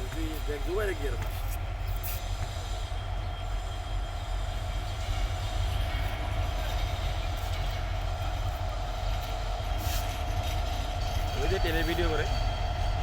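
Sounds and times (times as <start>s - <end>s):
freight train rumbling: 0.0s - 13.0s.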